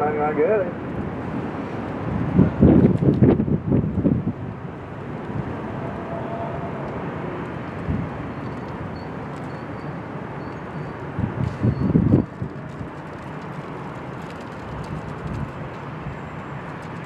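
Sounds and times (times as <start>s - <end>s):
jet engines roaring: 3.4s - 11.3s.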